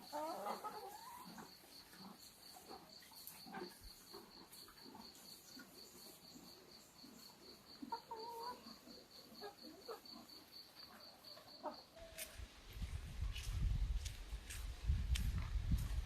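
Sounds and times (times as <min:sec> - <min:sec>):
chickens clucking: 0:00.0 - 0:12.4.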